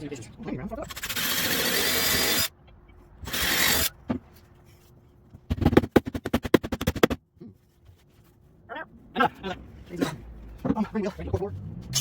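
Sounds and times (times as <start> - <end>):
rapid sharp mechanical clacks: 0.9 - 2.5.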